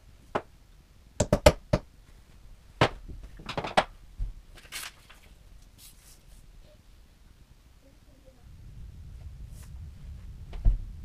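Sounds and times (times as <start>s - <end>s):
knocks and clicks of wooden parts: 1.2s - 1.9s, 2.8s - 4.3s.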